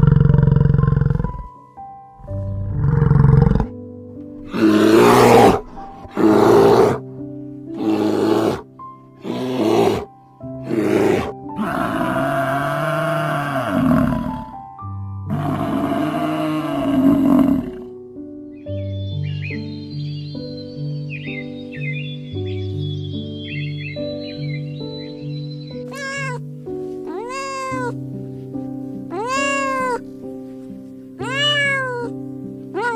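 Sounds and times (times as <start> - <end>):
bear roaring grunts: 0.0 - 1.5, 2.5 - 3.8, 4.4 - 7.0, 7.8 - 8.6, 9.2 - 14.6, 15.3 - 17.9
soft piano music: 0.0 - 32.9
water buffalo long calls: 4.4 - 7.0, 9.2 - 14.6, 15.3 - 17.8.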